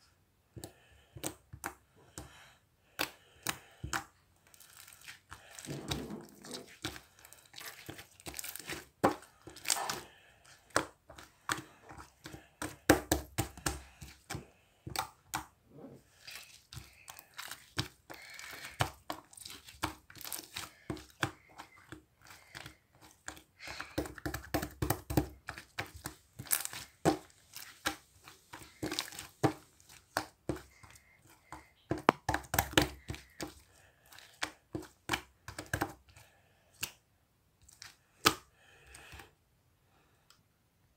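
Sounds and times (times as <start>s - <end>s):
slime squishing and popping: 4.6s - 10.0s, 16.3s - 21.8s, 22.4s - 30.8s.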